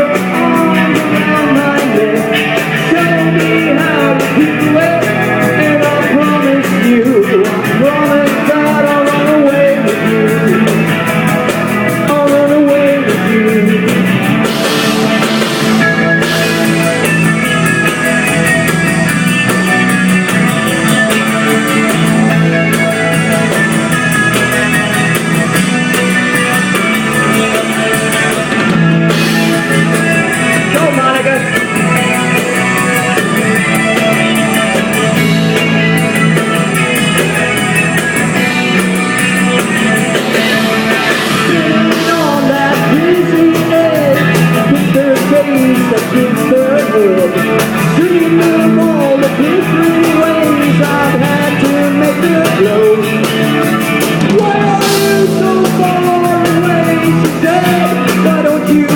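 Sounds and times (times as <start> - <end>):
gliding melodic guitar line: 0.0 - 58.9
rock band playing: 0.0 - 58.9.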